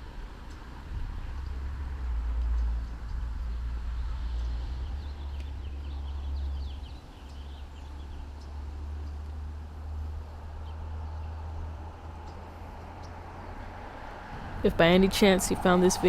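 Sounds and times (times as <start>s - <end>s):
small birds twittering: 2.4s - 13.6s.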